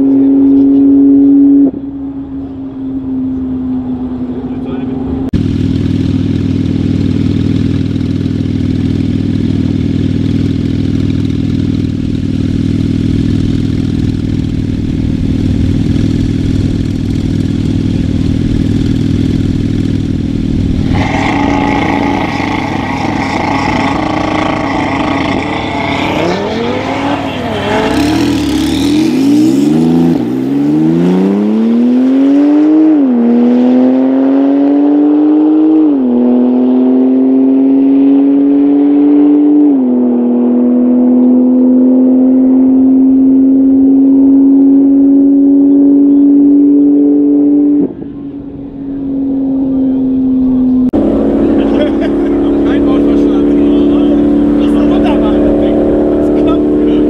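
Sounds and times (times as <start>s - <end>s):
engine blipping: 0.0s - 34.4s, 42.7s - 57.0s
car engines idling: 1.7s - 31.2s, 47.9s - 57.0s
cars accelerating hard: 12.6s - 57.0s.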